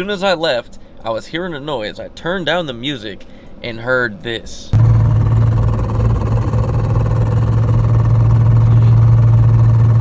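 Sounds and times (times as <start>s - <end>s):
car drivetrain hum and churn: 4.8s - 10.0s.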